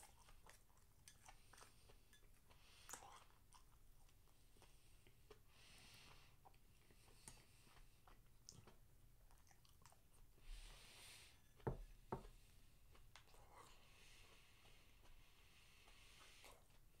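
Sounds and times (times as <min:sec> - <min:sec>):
person chewing: 0:00.0 - 0:05.5, 0:06.4 - 0:10.4.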